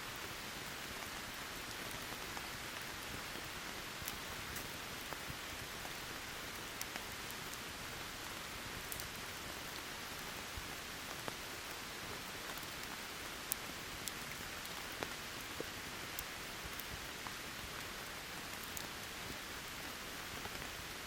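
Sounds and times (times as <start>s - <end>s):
campfire crackling: 0.2s - 21.0s.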